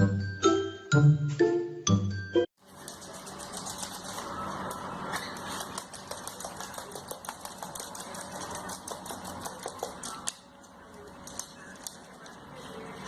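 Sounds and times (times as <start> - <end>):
rapid clicking and tapping: 2.7 - 12.4.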